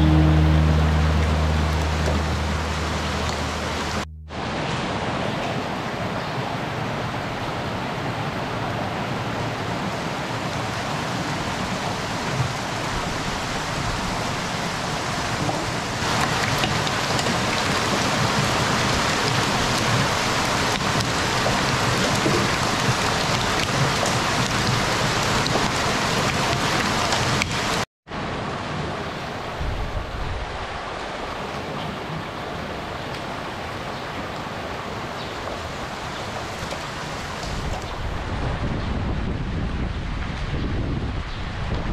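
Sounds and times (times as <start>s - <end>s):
water gushing into tanks: 9.9s - 27.8s.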